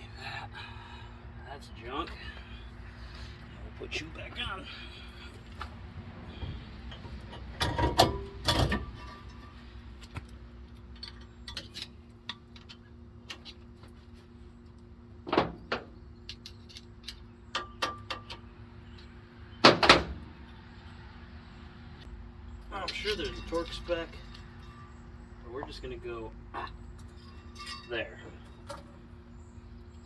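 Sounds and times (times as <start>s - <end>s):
steady low hum: 0.0s - 30.0s
metal parts clanking: 6.9s - 9.6s, 27.0s - 29.0s.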